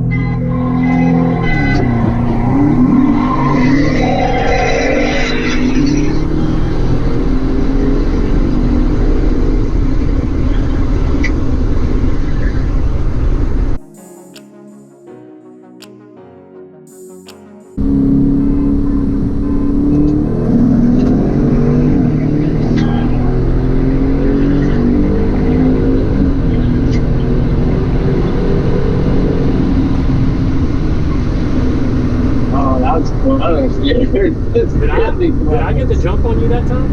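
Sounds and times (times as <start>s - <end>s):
road and wind rumble: 0.0s - 13.8s, 17.8s - 36.9s
brief high chirp: 13.8s - 18.2s
car engine running at speed: 17.8s - 36.9s.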